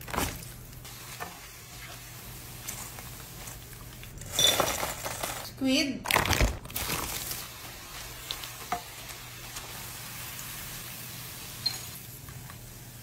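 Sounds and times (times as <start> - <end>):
squid rings sizzling in oil: 7.4 - 13.0.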